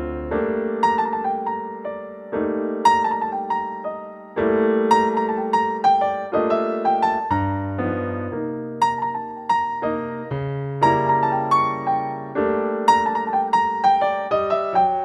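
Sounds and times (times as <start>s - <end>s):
gentle electric piano music: 0.0s - 15.0s.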